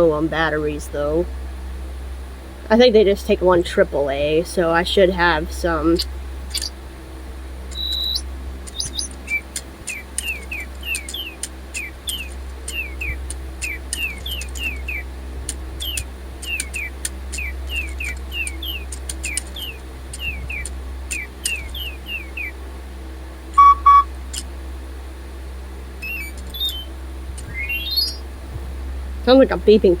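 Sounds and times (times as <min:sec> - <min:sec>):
robot toy birds chirping: 0:04.5 - 0:06.8, 0:07.7 - 0:22.5, 0:23.6 - 0:24.1, 0:26.0 - 0:28.2
loud electronic beeps: 0:07.8 - 0:13.2, 0:23.6 - 0:24.1, 0:26.0 - 0:26.9, 0:27.5 - 0:28.2.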